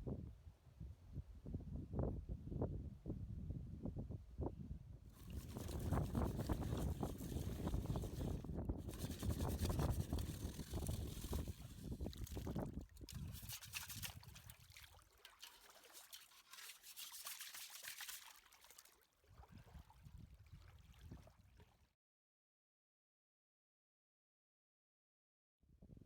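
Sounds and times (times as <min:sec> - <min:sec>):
wind buffeting microphone: 0:01.5 - 0:13.4
water trickling and splashing: 0:05.2 - 0:21.8.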